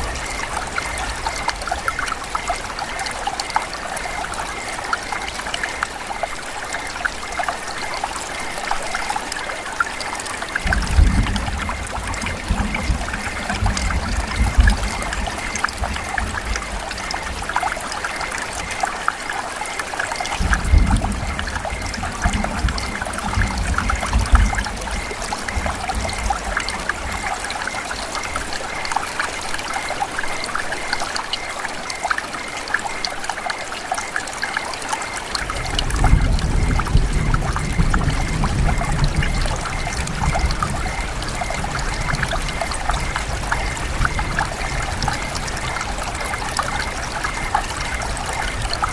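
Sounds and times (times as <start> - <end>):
rain falling and dripping: 0.0 - 48.9.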